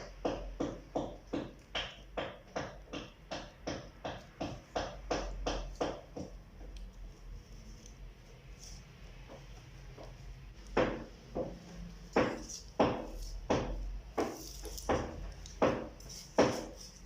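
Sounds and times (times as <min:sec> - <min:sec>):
sharp knocks: 0:10.7 - 0:16.8.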